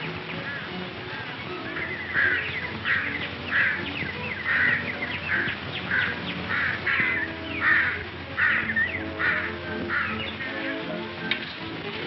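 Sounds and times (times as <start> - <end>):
bird cawing harshly: 1.8 - 10.6.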